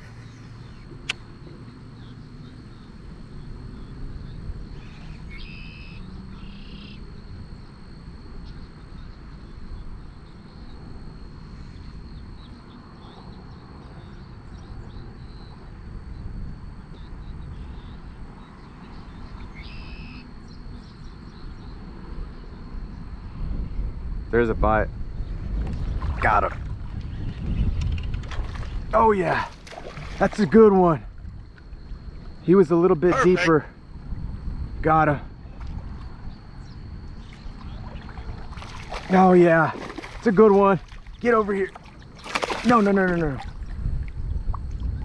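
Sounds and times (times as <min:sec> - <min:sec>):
bird calls: 0:00.0 - 0:07.1, 0:16.9 - 0:21.8, 0:35.9 - 0:43.7
wind rumbling on microphone: 0:00.0 - 0:45.0.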